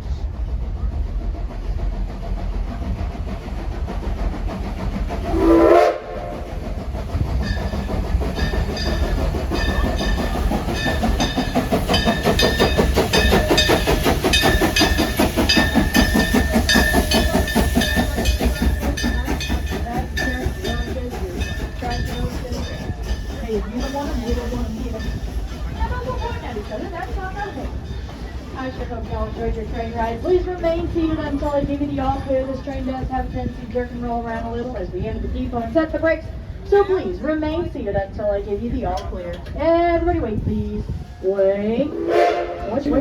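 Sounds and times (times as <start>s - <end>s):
steam train clattering: 0.0s - 43.0s
train whistle blast: 5.3s - 6.5s, 41.9s - 43.0s.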